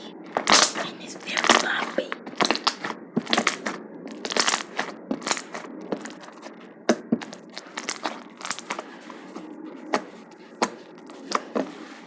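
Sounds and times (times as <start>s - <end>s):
slime crackling and popping: 0.5s - 0.8s, 2.4s - 6.2s, 7.3s - 8.8s.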